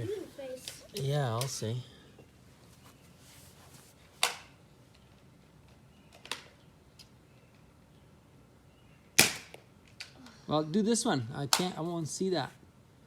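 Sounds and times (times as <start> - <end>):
toy blaster snapping shots: 9.2 - 9.6.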